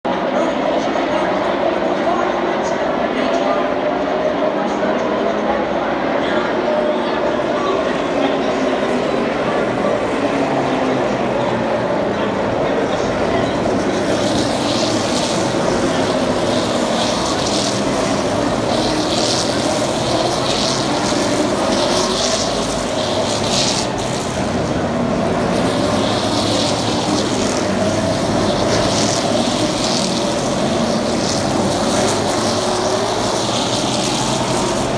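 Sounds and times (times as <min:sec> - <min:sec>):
race car engines: 0:00.1 - 0:34.9
hiss: 0:13.7 - 0:34.9.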